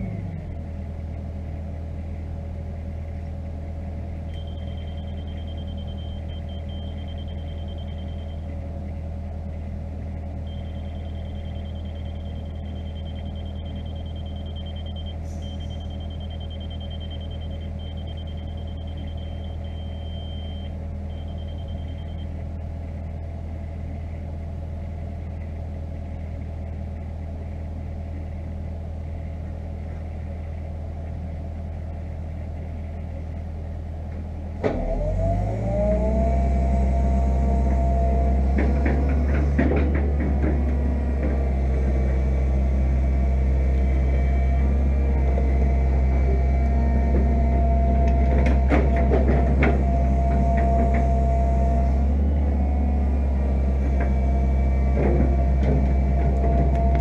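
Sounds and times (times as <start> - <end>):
excavator diesel engine: 0.0 - 57.0
hydraulic whine: 34.6 - 57.0.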